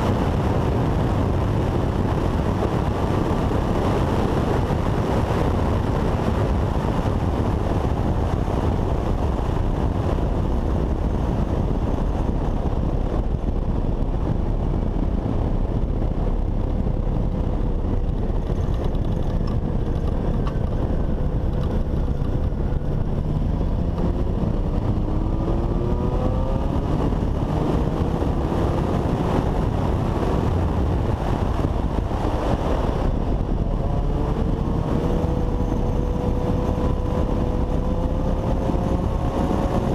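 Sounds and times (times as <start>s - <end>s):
heavy wind noise: 0.0s - 39.9s
motorcycle engine accelerating: 0.0s - 39.9s.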